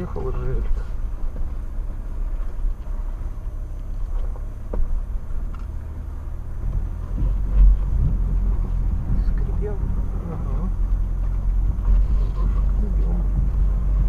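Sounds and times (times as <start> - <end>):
vehicle engine and running gear rumble: 0.0 - 14.0
heavy low thump: 4.1 - 14.0.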